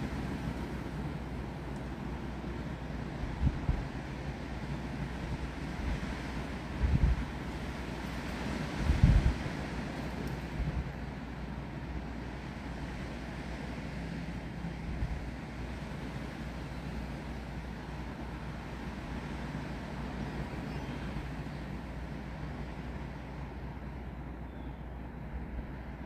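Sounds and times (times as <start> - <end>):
wind rumble on microphone: 0.0 - 11.2, 14.7 - 17.4
wind blowing through trees: 0.0 - 24.8.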